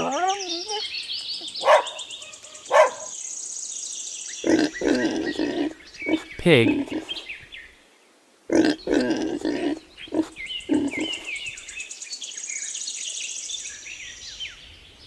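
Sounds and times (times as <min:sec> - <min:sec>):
birds chirping: 0:00.0 - 0:07.8, 0:08.5 - 0:15.0
pig grunting: 0:04.4 - 0:07.3, 0:08.5 - 0:11.4.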